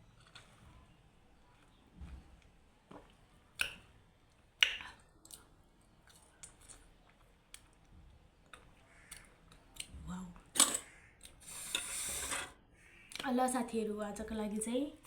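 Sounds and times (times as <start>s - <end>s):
mouth clicks and smacks: 3.6s - 3.8s, 4.6s - 5.5s.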